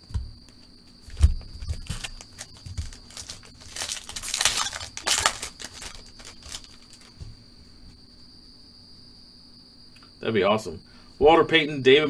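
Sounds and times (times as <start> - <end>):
cards tapping and clicking: 1.1 - 7.3
wrapper crinkling: 1.2 - 7.2.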